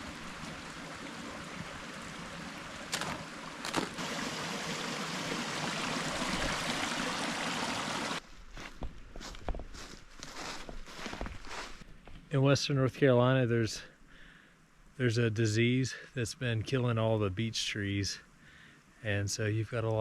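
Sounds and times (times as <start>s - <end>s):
stream flowing: 0.0s - 8.2s.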